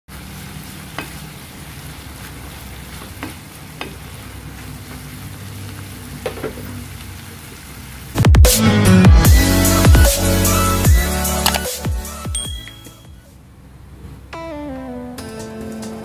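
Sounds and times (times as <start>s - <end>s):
food sizzling in a frying pan: 0.1s - 8.2s
loud electronic music: 8.2s - 13.2s, 14.4s - 16.0s.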